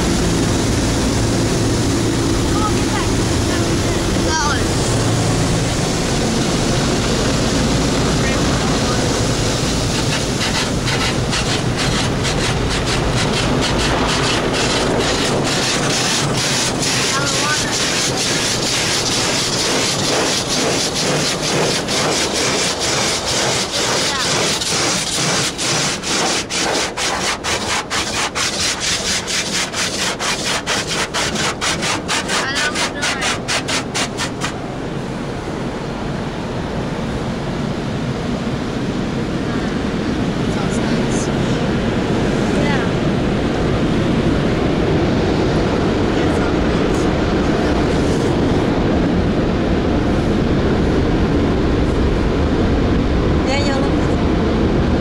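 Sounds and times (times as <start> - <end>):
car wash brushes and spray: 0.0 - 35.3, 39.7 - 50.9
brush strips slapping car body: 9.9 - 34.6.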